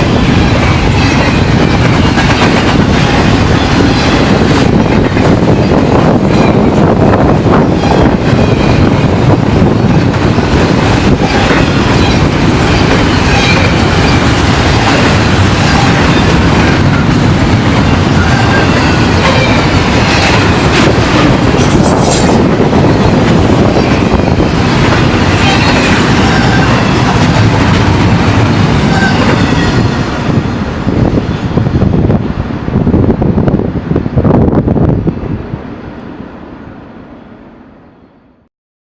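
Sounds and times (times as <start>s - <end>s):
high wheel squeal: 25.4s - 27.0s.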